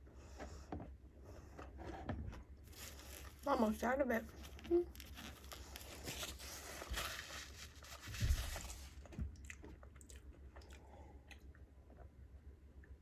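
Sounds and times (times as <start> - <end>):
chewing and crunching food: 2.7 - 13.0.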